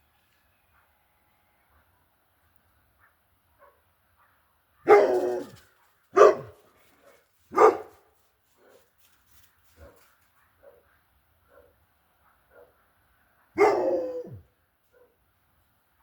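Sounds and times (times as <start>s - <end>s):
dog barking: 3.0s - 8.9s, 9.8s - 15.2s.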